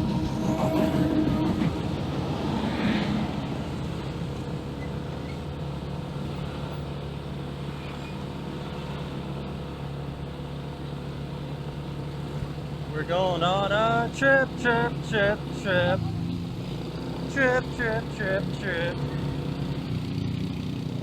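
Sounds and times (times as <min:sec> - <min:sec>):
road noise: 0:00.0 - 0:21.0
small motorcycle engine running: 0:15.7 - 0:21.0.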